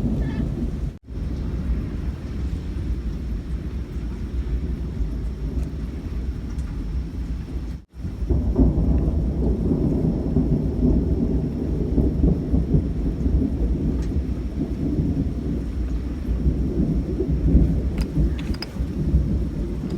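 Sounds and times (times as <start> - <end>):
rain falling: 0.0 - 19.9
thunder rumbling: 0.0 - 19.9.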